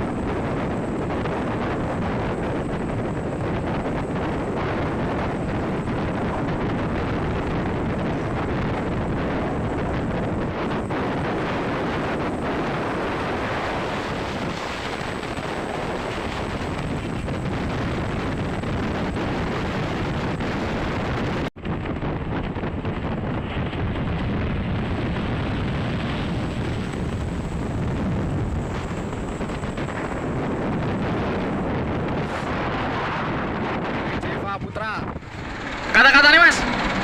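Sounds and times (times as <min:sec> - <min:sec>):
wind on microphone: 0:00.0 - 0:37.0
traffic road and engine noise: 0:34.6 - 0:37.0.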